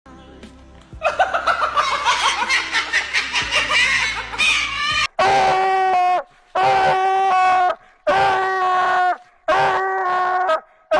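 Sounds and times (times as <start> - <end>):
rapid cackling laughter: 1.0 - 5.4
long wailing cries: 3.8 - 10.7.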